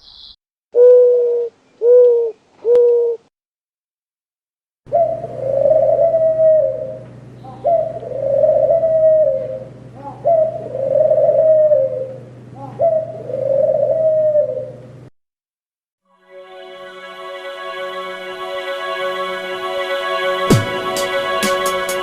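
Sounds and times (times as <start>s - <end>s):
dove cooing: 0.8s - 3.3s, 4.9s - 14.9s
steady low hum: 4.9s - 15.1s.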